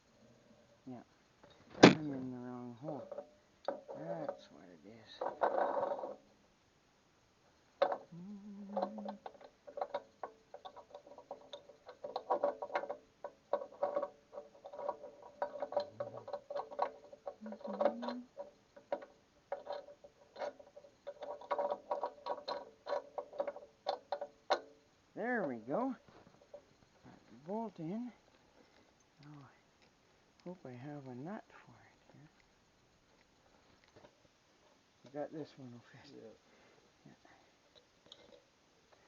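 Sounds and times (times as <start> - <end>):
metal clicks and clinks: 7.8 - 24.8, 37.7 - 39.0.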